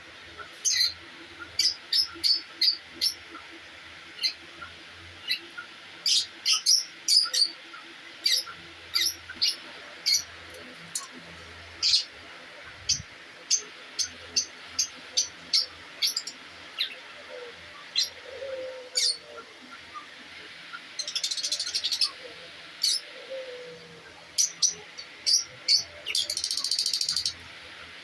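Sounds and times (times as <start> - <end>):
birds high chirps: 0.4 - 11.2, 11.8 - 27.5
bird chattering trills: 20.7 - 27.4.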